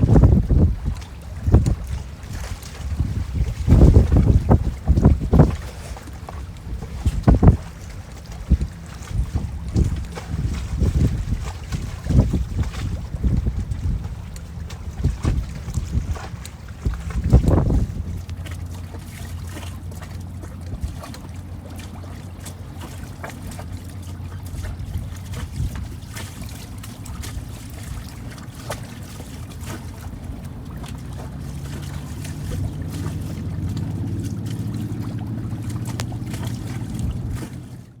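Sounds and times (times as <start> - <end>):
outboard motor running: 0.0 - 38.0
water slapping against hull: 0.0 - 38.0.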